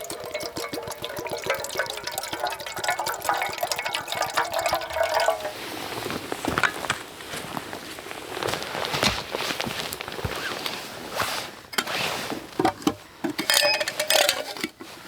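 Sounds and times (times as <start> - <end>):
liquid pouring into container: 0.0 - 6.0.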